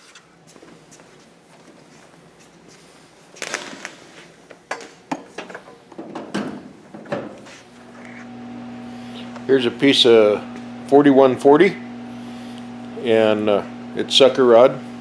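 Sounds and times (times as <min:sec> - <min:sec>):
steady low hum: 0:07.4 - 0:15.0.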